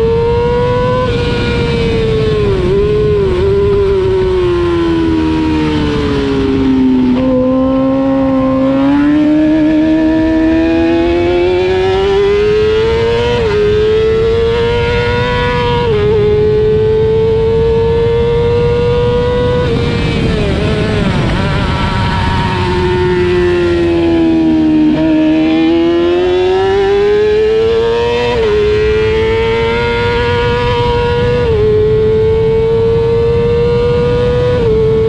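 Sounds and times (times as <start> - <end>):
racing motorcycle engine revving: 0.0 - 35.0
wind and road noise: 0.0 - 35.0.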